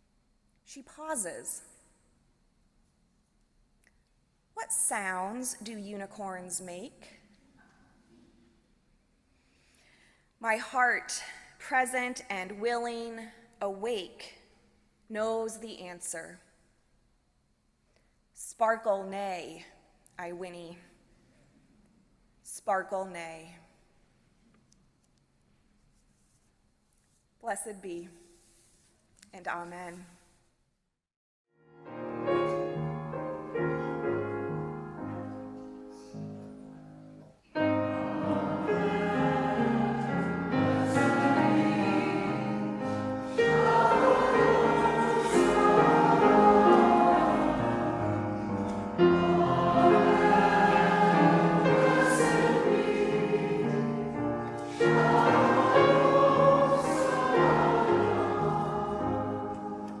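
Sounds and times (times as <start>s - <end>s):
musical accompaniment: 31.6s - 60.0s
choir singing: 37.6s - 60.0s.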